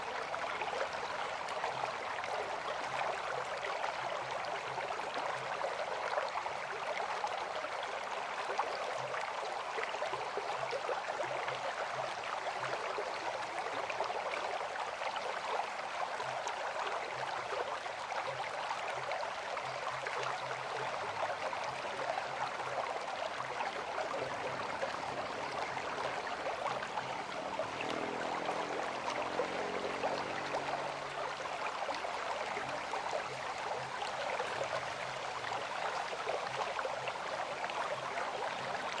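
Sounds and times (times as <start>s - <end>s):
river water rushing: 22.6s - 39.0s.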